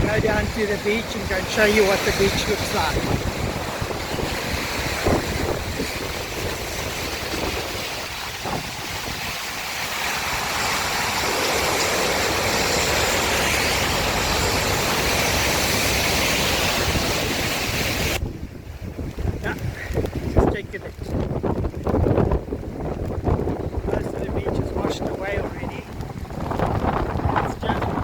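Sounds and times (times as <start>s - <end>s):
river water rushing: 0.0s - 18.2s
wind on microphone: 0.0s - 28.0s.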